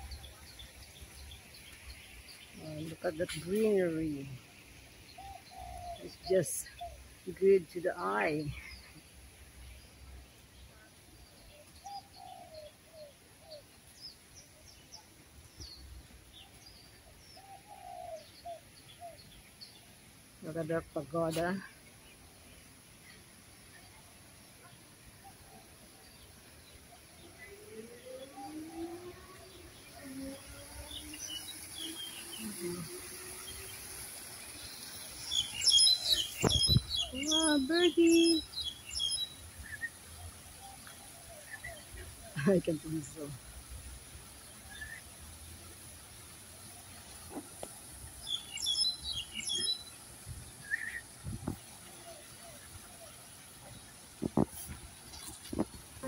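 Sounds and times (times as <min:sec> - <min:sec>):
birds chirping: 0:00.0 - 0:56.0
lower falling bird notes: 0:27.9 - 0:39.8.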